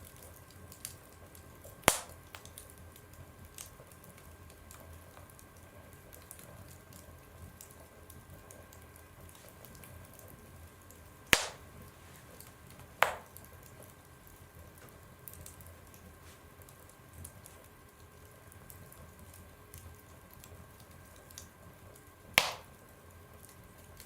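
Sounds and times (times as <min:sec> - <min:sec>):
wood fire crackling: 0:00.0 - 0:24.0
loud sharp pops: 0:01.9 - 0:02.2, 0:11.4 - 0:11.7, 0:13.0 - 0:13.3, 0:22.4 - 0:22.7.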